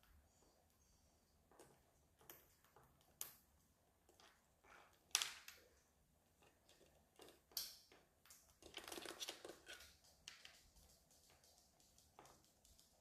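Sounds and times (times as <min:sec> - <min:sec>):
birds scratching and clicking: 0:08.3 - 0:13.0.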